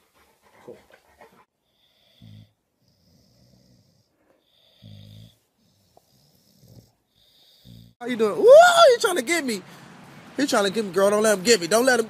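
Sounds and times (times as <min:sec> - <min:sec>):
faint rasping snoring: 0:01.6 - 0:08.0.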